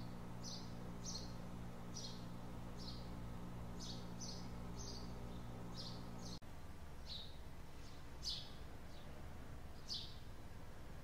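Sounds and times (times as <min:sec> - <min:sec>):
small birds chirping: 0:00.0 - 0:06.4, 0:07.0 - 0:11.0
steady low hum: 0:00.0 - 0:11.0.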